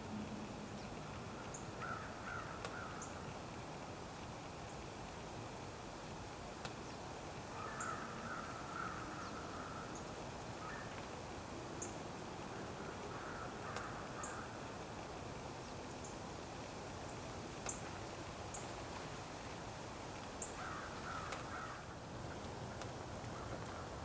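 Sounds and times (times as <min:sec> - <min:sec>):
steady low hiss: 0:00.0 - 0:24.0
bird harsh calls: 0:12.8 - 0:14.6, 0:20.4 - 0:21.9.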